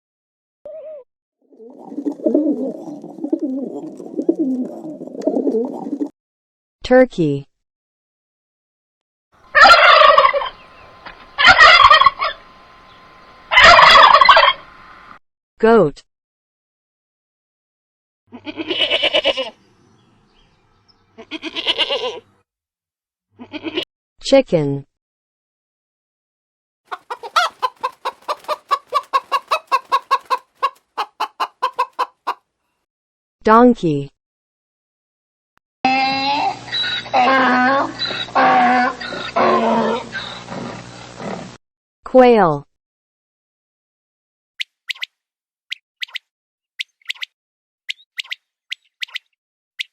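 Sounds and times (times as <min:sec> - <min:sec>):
chicken clucking: 0:09.4 - 0:14.8, 0:26.9 - 0:32.4
chicken squawk: 0:09.4 - 0:15.0, 0:26.9 - 0:32.4, 0:36.7 - 0:40.5
turkey gobbling: 0:09.4 - 0:15.0, 0:26.9 - 0:32.4.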